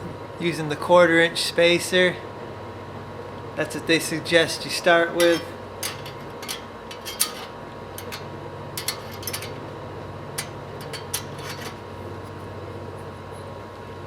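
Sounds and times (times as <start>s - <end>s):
steady low hum: 2.2s - 14.0s
metal clicks and clinks of bolts: 5.2s - 9.6s, 10.4s - 11.8s.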